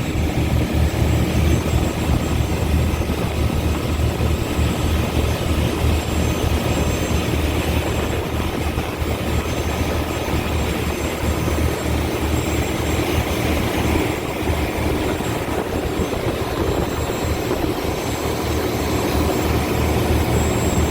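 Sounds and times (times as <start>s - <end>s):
boat diesel engines droning: 0.0s - 20.9s.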